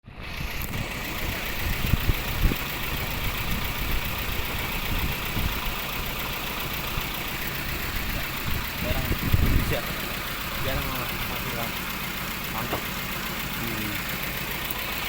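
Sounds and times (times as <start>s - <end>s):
car engine idling: 0.1s - 15.0s.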